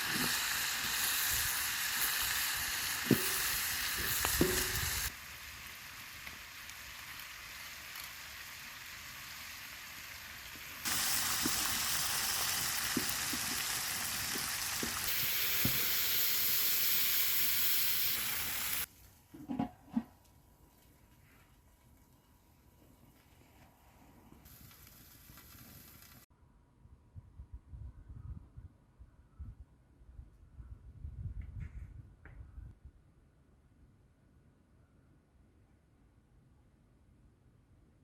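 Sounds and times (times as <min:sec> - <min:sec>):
food sizzling in a pan: 0:00.0 - 0:18.9.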